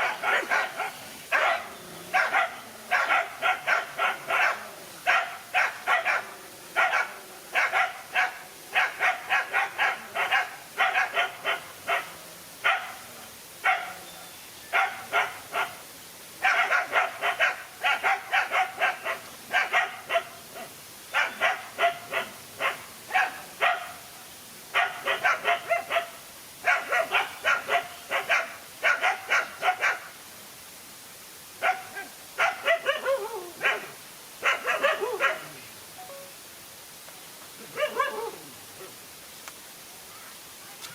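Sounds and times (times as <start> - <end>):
dogs barking sharply: 0.0 - 13.0, 16.4 - 20.3, 21.2 - 24.0, 24.8 - 30.0, 31.6 - 35.4.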